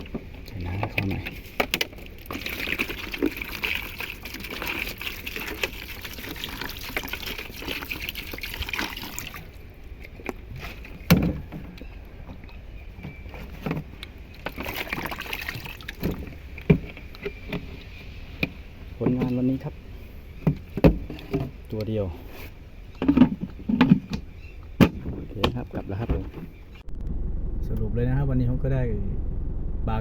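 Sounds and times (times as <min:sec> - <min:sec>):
water pouring and splashing: 0:00.0 - 0:11.1, 0:14.2 - 0:18.0.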